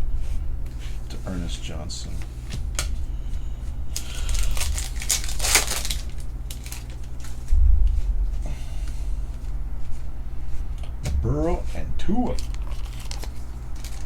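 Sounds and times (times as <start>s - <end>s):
low bump: 2.1s - 13.9s
foil wrapper crinkling and tearing: 2.5s - 7.5s, 12.2s - 14.0s.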